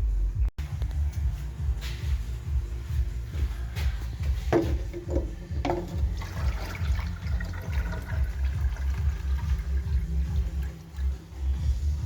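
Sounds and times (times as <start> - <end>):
water running: 4.6 - 11.8.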